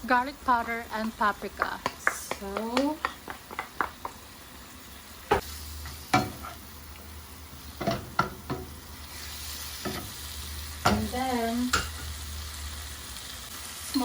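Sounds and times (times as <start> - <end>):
liver and onion sizzling in a pan: 0.0 - 14.0
utensil knocking against a pan: 1.6 - 4.2.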